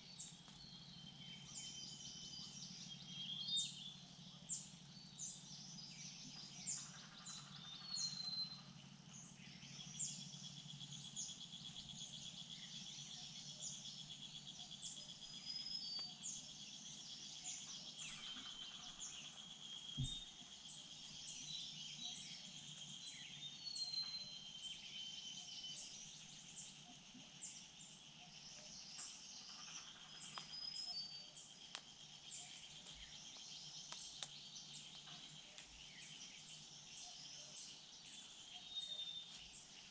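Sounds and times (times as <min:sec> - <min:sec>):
small birds chirping: 0:00.0 - 0:39.9
soft knock: 0:20.0 - 0:20.3.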